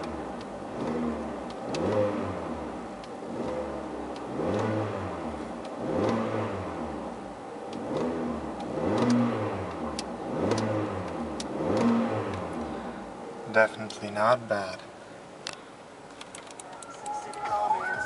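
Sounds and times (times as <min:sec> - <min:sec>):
car engine revving: 0:00.0 - 0:13.3.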